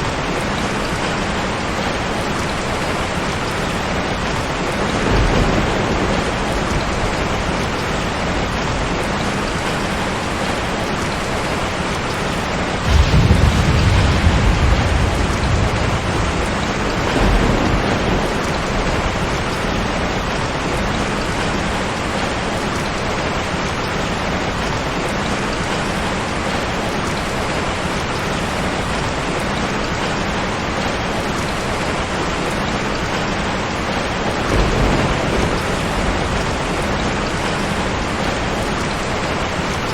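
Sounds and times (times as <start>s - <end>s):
steady rain falling: 0.0s - 39.9s
thunder rumbling: 2.0s - 11.6s, 12.8s - 22.6s, 33.8s - 39.5s.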